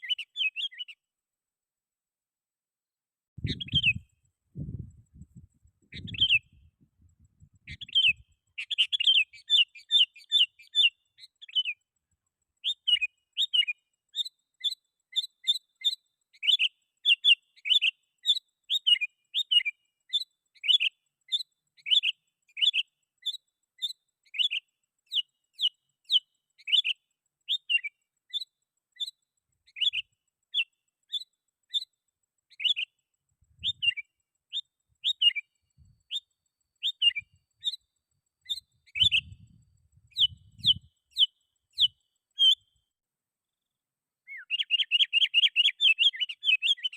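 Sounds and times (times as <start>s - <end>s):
bulbul whistled calls: 0.0s - 1.0s, 3.4s - 4.1s, 5.8s - 6.7s, 7.6s - 11.8s, 12.6s - 31.9s, 32.5s - 33.0s, 33.6s - 39.4s, 40.1s - 42.7s, 44.3s - 46.9s.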